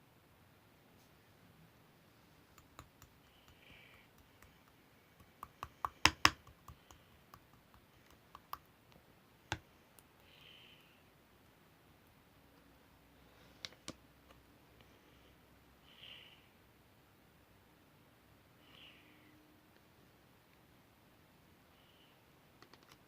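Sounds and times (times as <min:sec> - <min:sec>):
sharp clicks and taps: 0:02.5 - 0:10.2, 0:22.6 - 0:23.0.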